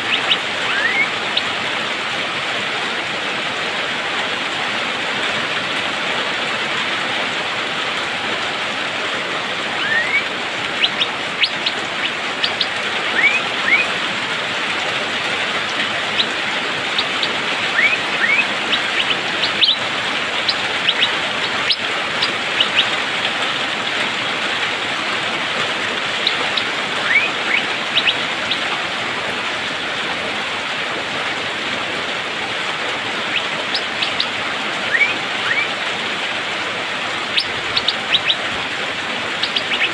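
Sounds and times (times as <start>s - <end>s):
bird giving sharp rising calls: 0.0s - 1.6s, 9.7s - 14.0s, 15.4s - 23.0s, 26.0s - 28.7s, 33.2s - 35.8s, 36.9s - 39.9s
rain hissing: 0.0s - 39.9s.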